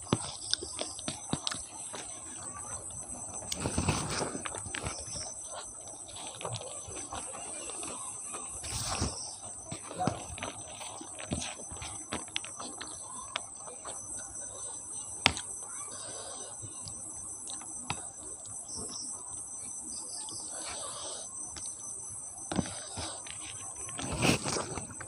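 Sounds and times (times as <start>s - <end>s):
chewing with wet mouth clicks: 0.0s - 3.6s, 9.4s - 14.7s
steady high-pitched whine: 0.0s - 25.0s.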